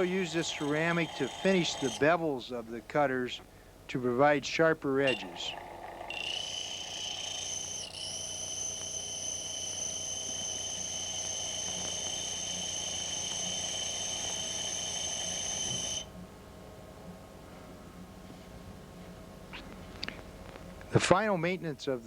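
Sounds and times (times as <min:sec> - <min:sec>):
honing machine high-pitched whine: 0:00.0 - 0:02.4, 0:05.0 - 0:16.2.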